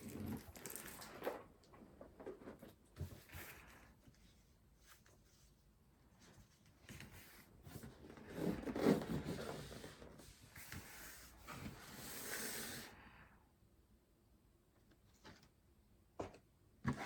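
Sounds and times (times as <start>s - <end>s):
packaging rustling and crinkling: 0.0s - 2.7s.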